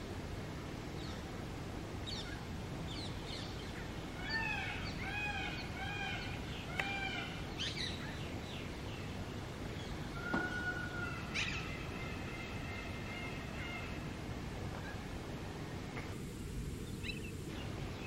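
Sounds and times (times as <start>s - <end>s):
birds calling: 2.0s - 15.1s, 16.8s - 18.0s.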